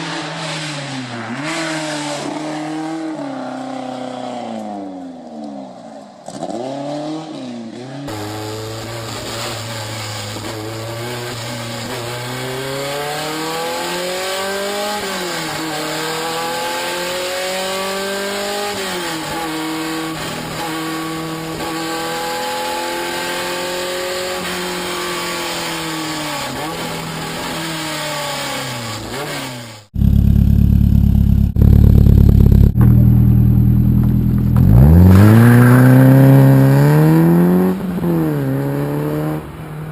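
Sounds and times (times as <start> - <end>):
car engine accelerating: 8.1 - 39.9
low engine drone: 30.0 - 34.6.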